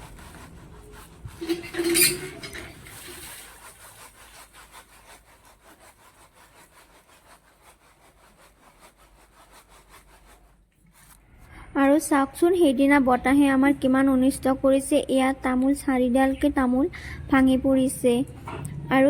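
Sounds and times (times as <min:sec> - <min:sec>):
laundry scrubbing by hand: 0:00.0 - 0:11.2.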